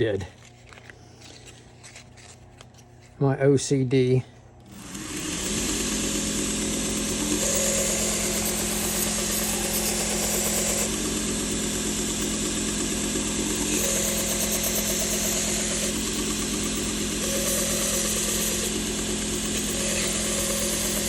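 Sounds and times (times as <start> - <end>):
belt grinder running: 4.6 - 21.0.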